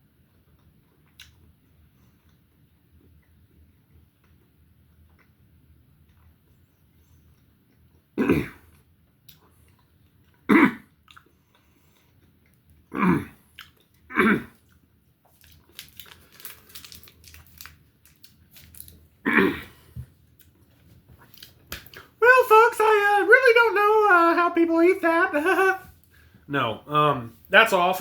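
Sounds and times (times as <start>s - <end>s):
man chewing: 0.2s - 22.2s
man coughing: 8.2s - 8.6s, 10.5s - 10.8s, 14.1s - 14.5s, 19.2s - 19.8s.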